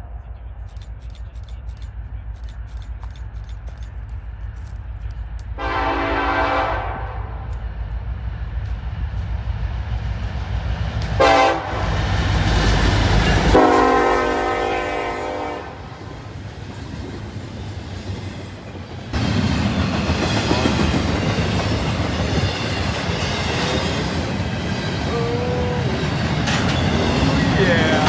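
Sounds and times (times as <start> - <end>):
rumble of passing train: 0.0 - 28.0
train horn blasts: 5.6 - 7.5, 11.2 - 12.0, 13.3 - 16.1.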